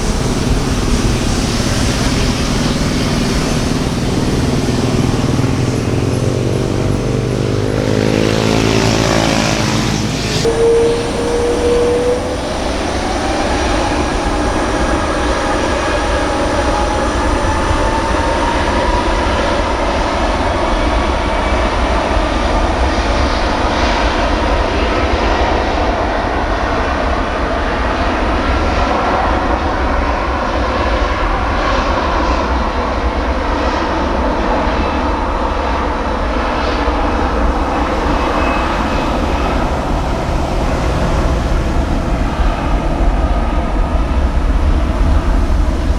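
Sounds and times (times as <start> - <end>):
jet engines running: 0.0 - 45.9.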